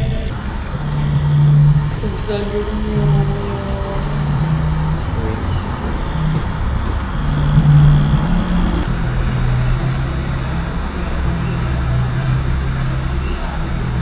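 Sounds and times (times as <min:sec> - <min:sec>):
tattoo machine buzzing: 0:00.0 - 0:10.4.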